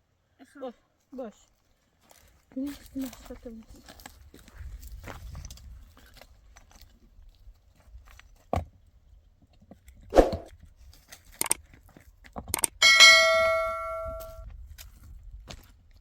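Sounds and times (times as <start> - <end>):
metal object clanging: 12.8 - 14.4.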